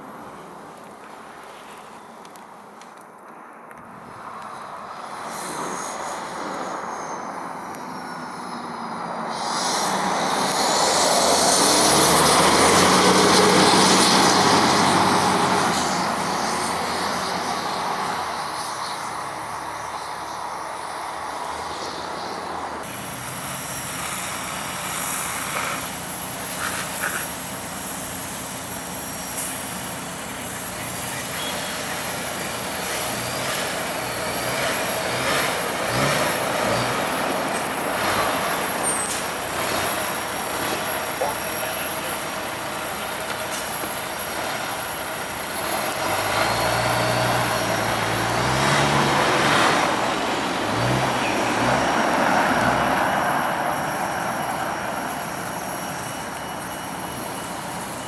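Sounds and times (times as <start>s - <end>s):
steady high whine: 3.3s - 58.0s
emergency vehicle passing: 4.0s - 58.0s.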